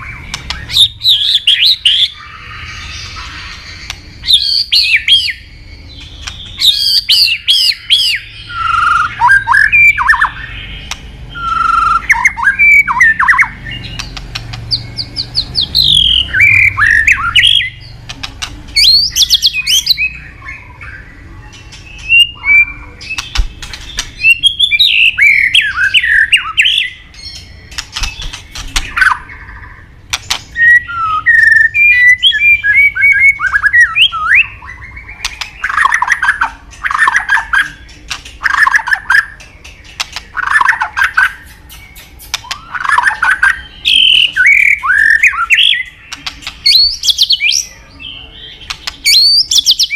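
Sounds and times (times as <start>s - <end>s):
bird singing whistled trills: 0.0s - 18.0s, 18.8s - 39.4s, 40.2s - 49.9s
bird clicking notes: 6.0s - 7.2s, 10.8s - 12.2s, 13.8s - 16.1s, 30.1s - 30.6s, 35.2s - 43.5s.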